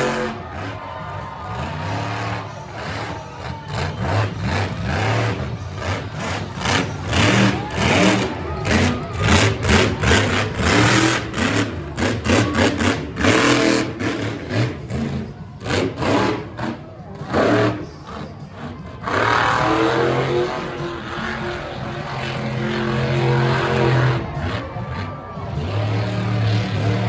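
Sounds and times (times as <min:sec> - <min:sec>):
engine revving in bursts: 0:03.8 - 0:17.9.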